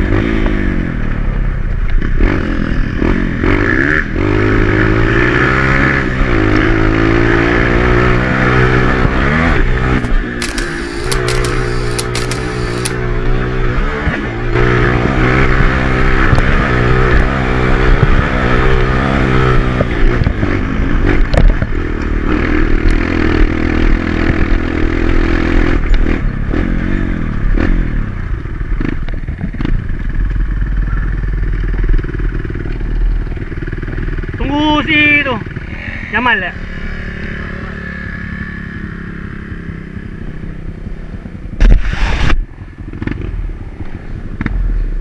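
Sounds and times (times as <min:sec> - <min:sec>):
dirt bike engine revving: 0:02.2 - 0:19.7.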